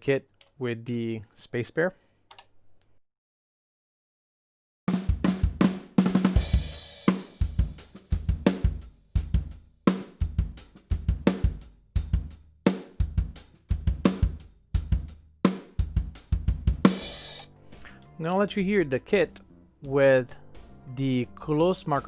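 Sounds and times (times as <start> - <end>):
drum kit groove: 4.9 - 18.4
cymbal crash: 16.9 - 17.5.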